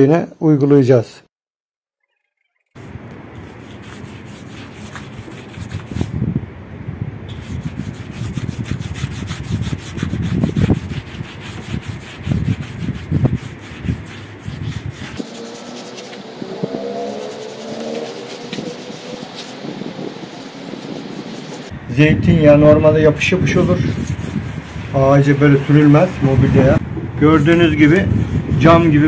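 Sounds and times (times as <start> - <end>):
scrubbing a log: 3.4 - 6.1, 7.3 - 21.7, 23.5 - 26.8.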